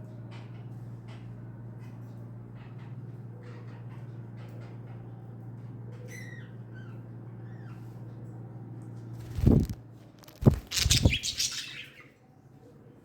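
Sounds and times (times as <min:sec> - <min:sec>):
budgie chirps: 0:10.4 - 0:11.8.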